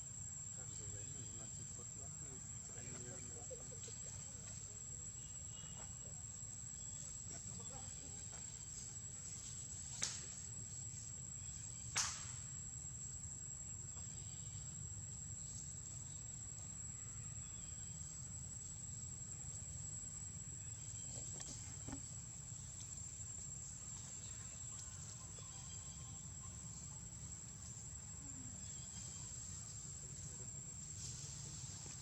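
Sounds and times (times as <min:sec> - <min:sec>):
sharp snaps: 0:11.9 - 0:12.4.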